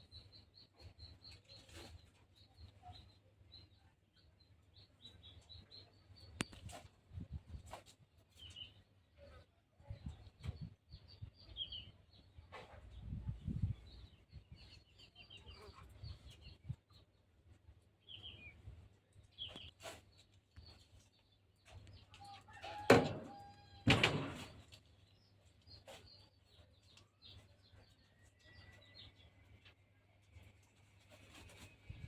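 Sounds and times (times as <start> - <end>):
small birds chirping: 0.0 - 22.6
loud knocks or rustles: 22.8 - 24.8.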